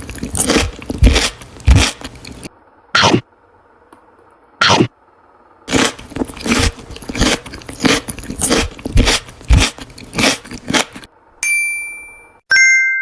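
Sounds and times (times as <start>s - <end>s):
crunchy food being chewed: 0.0s - 3.2s, 5.7s - 11.1s
bright chime ding: 11.4s - 13.0s.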